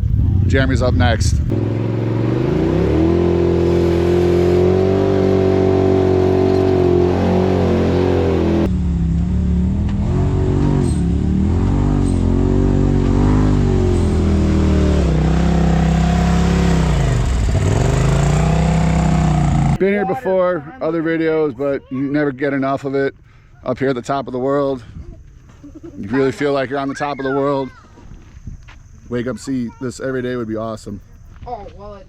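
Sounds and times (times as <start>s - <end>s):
utility vehicle engine revving: 0.0s - 19.8s.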